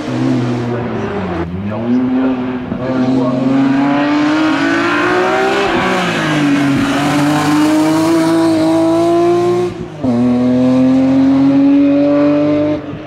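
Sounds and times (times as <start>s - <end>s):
racing car engine accelerating: 0.0s - 13.0s.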